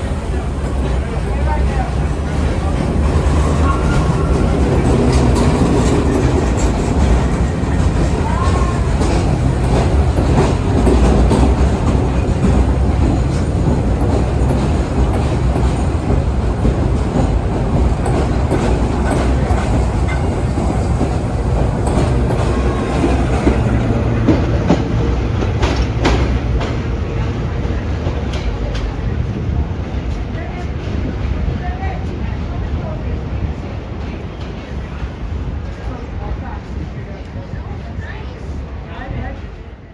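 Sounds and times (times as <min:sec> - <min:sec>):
subway train rumbling: 0:00.0 - 0:39.9
wheels clicking over rail joints: 0:01.9 - 0:29.0.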